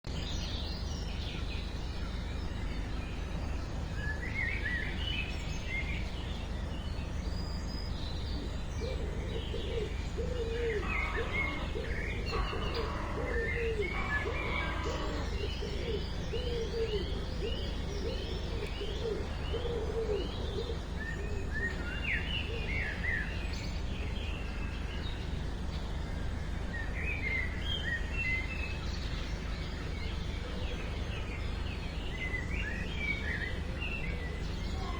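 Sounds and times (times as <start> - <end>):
birds chirping and calling: 7.9 - 23.4.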